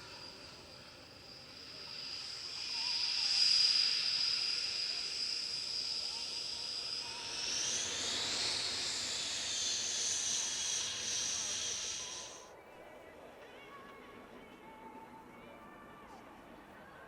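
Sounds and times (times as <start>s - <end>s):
jet engines whining: 0.0s - 12.5s
jet hiss: 0.0s - 12.5s.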